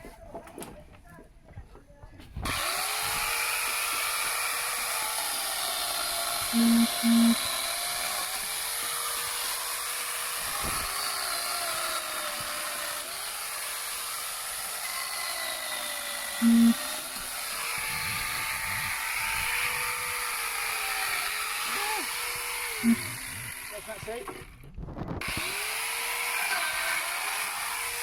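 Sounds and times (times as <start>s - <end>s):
angle grinder cutting wood: 2.4s - 24.6s, 25.2s - 28.0s
short loud beeps: 6.6s - 7.4s, 16.4s - 16.8s, 22.8s - 23.2s.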